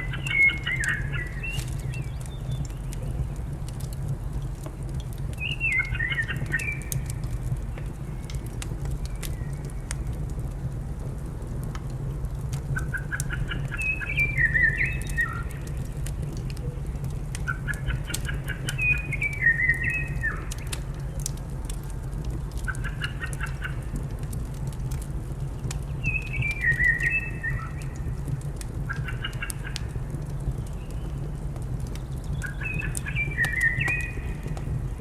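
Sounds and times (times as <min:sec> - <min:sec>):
songbird singing: 0:00.0 - 0:03.6, 0:05.3 - 0:10.0, 0:12.8 - 0:21.3, 0:22.6 - 0:23.9, 0:25.9 - 0:28.2, 0:28.8 - 0:35.0
wood fire crackling: 0:00.0 - 0:35.0.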